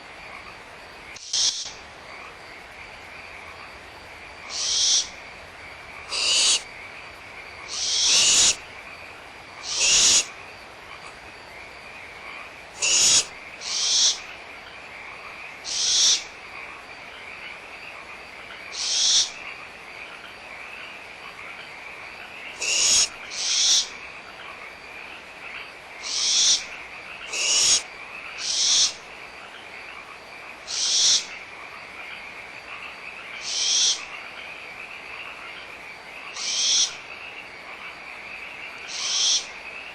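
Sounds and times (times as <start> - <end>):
frogs chorus: 0.0 - 39.9
owl chicks hissing: 4.5 - 5.1, 6.1 - 6.7, 7.7 - 8.6, 9.6 - 10.3, 12.8 - 14.2, 22.6 - 23.8, 27.3 - 27.8.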